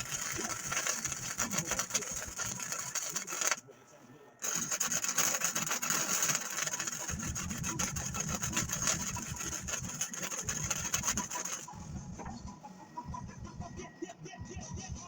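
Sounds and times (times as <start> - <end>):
welding arc crackling: 0.0 - 3.6, 4.4 - 11.8.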